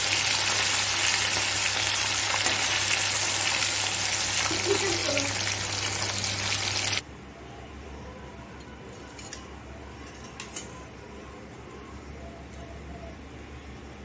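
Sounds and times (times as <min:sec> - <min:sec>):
fish frying in hot oil: 0:00.0 - 0:07.0.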